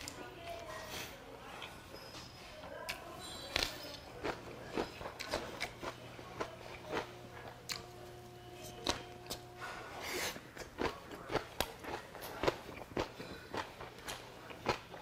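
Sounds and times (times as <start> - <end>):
chewing crunches: 2.8 - 8.0, 10.1 - 15.0.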